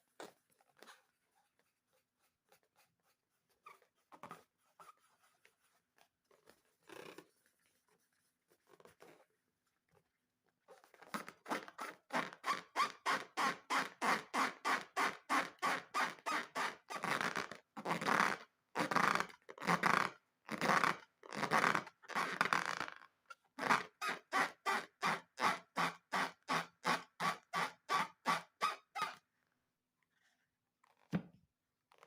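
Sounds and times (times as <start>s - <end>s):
squeaky rubbing strokes: 0.8s - 9.2s, 23.6s - 29.2s.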